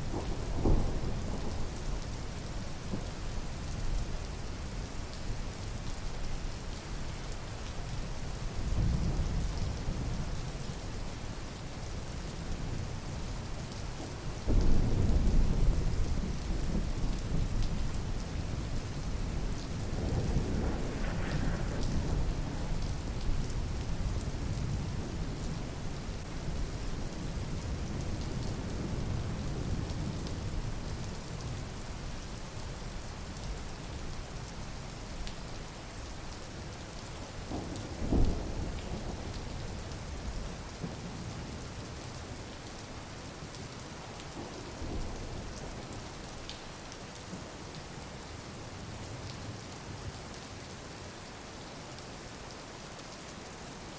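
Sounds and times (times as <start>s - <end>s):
steady rain: 0.0s - 53.9s
thunder rumbling: 0.1s - 2.1s, 19.8s - 25.0s.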